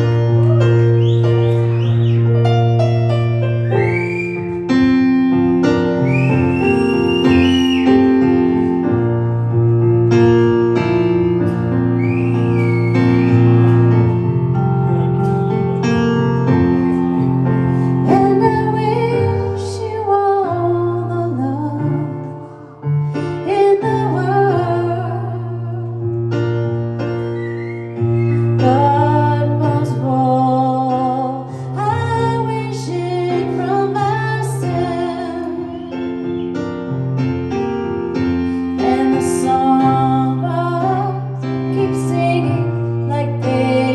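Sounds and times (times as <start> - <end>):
piano chords: 0.0 - 43.9
person singing a slow ballad: 17.8 - 26.3, 28.2 - 36.3, 38.6 - 43.9.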